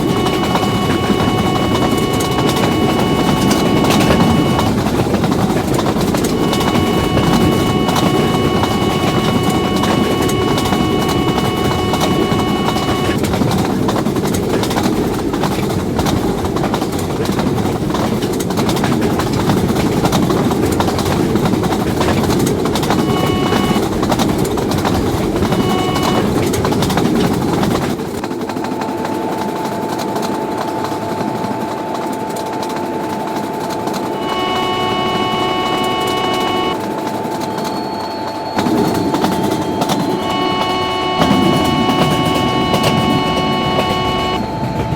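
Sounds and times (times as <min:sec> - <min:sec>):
longer stacked tone: 0:00.0 - 0:13.2, 0:22.8 - 0:24.0, 0:25.4 - 0:26.4, 0:31.3 - 0:44.9
short pitched tones: 0:00.0 - 0:13.2, 0:22.9 - 0:23.9, 0:25.4 - 0:26.4, 0:34.1 - 0:44.9
steady tone: 0:00.0 - 0:13.2, 0:22.9 - 0:23.8, 0:25.4 - 0:26.3, 0:34.1 - 0:36.8, 0:38.0 - 0:44.9
train wheels rumbling and clattering: 0:13.2 - 0:34.2.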